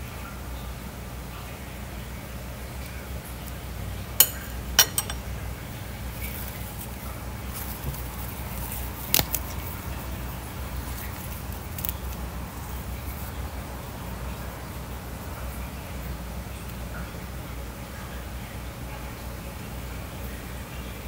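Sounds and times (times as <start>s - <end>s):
steady low hum: 0.0s - 21.0s
utensil clicking on plate: 4.2s - 5.2s
leaves rustling: 6.0s - 14.8s.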